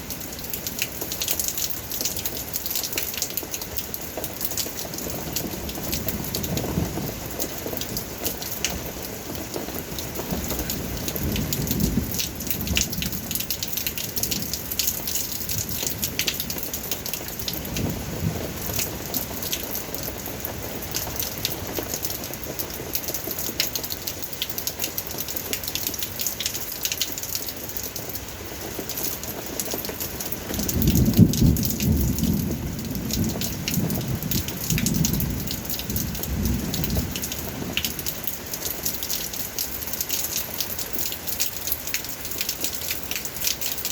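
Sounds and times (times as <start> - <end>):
rain pattering: 0.0 - 43.9.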